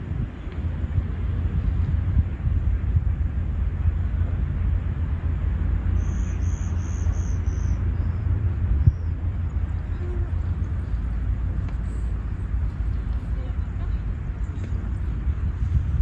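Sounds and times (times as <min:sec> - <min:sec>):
low outdoor rumble: 0:00.0 - 0:16.0
bird chirping: 0:06.0 - 0:09.2.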